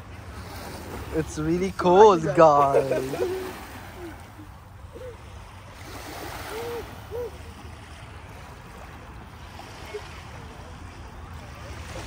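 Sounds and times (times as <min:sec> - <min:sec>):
lake water washing at shore: 0:00.0 - 0:12.0
faint hoot-like calls: 0:03.1 - 0:05.4, 0:06.2 - 0:07.6.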